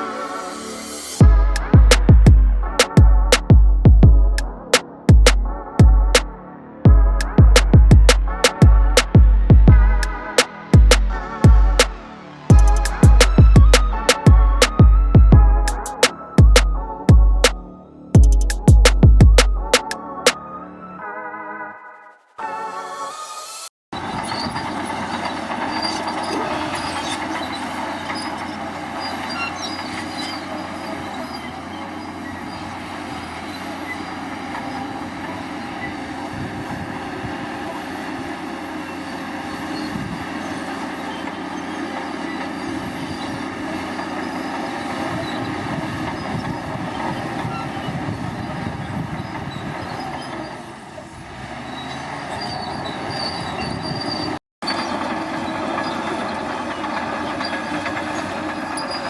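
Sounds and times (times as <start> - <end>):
steel tracks squealing and clanking: 22.8 - 59.0
bulldozer diesel engine under load: 24.0 - 59.0.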